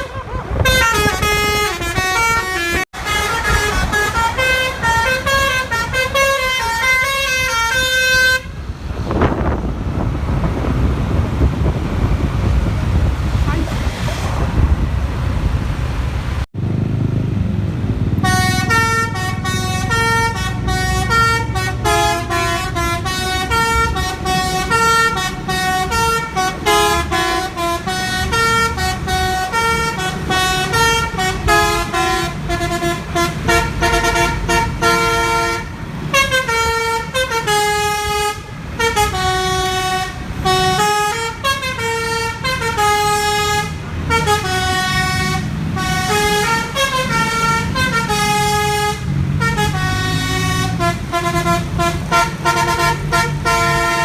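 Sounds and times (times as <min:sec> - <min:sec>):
bus horn playing a melody: 0:00.0 - 0:08.6, 0:18.2 - 0:54.0
bus engine rumble: 0:00.0 - 0:54.0.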